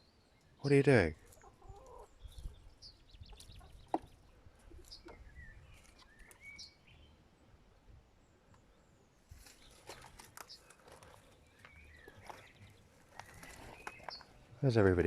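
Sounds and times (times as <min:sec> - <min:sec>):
faint outdoor background: 0:00.0 - 0:15.0
high bird chirps: 0:04.8 - 0:07.2.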